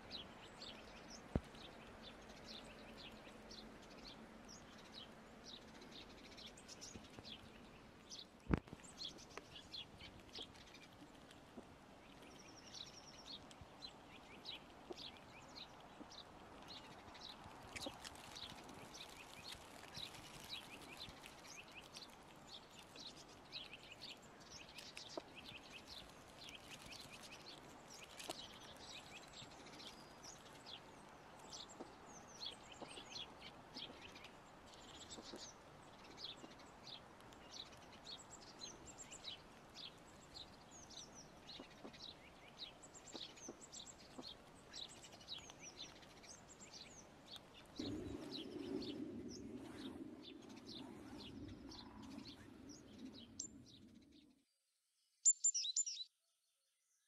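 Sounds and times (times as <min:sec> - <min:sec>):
small birds chirping faintly: 0:00.0 - 0:57.0
low rushing noise: 0:47.8 - 0:54.0.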